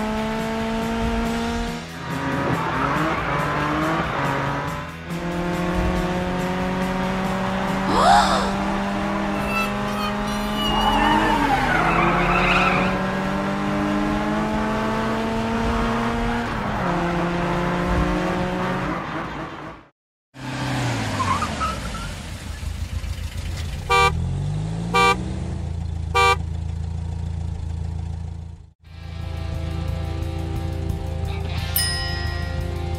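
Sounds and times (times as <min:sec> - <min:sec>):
cartoon racing car engines revving: 0:00.0 - 0:22.8, 0:23.8 - 0:26.4
tyre squeal: 0:09.2 - 0:13.0
car horn tooting: 0:09.3 - 0:11.4, 0:23.8 - 0:24.2, 0:24.9 - 0:25.2, 0:26.1 - 0:26.4.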